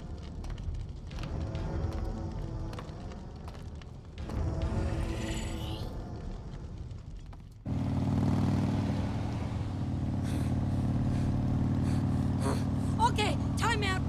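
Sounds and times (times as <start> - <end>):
vehicle engine running steadily: 7.6 - 14.0.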